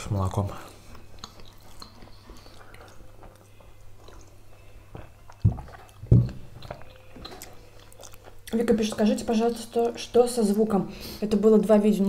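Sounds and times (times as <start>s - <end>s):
chewing food: 0.2s - 10.2s
sipping and swallowing: 4.0s - 8.2s.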